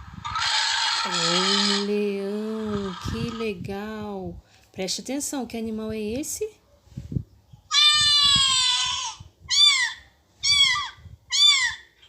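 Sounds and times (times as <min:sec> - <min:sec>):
cat meowing: 0:07.7 - 0:11.8.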